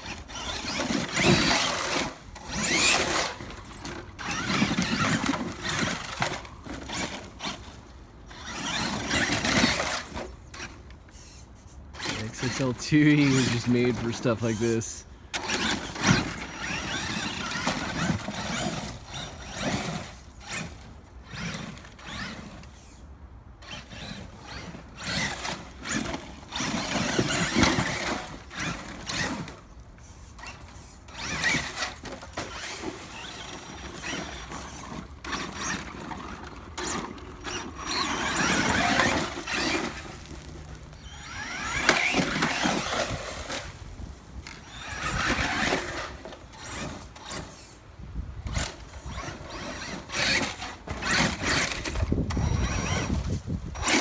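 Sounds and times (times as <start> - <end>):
electric motor whining: 0.0 - 23.0, 23.6 - 47.8, 48.4 - 54.0
tyres churning dirt: 0.0 - 54.0.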